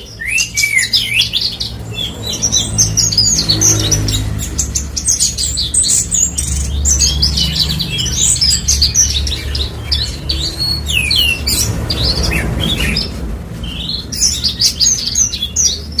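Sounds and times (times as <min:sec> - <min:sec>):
lark singing chirps and trills: 0:00.0 - 0:16.0.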